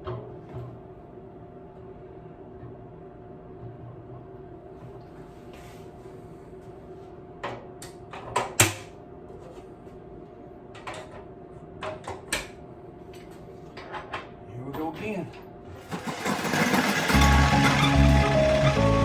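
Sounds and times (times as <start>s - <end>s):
frames knocking against metal basket: 15.9s - 19.0s.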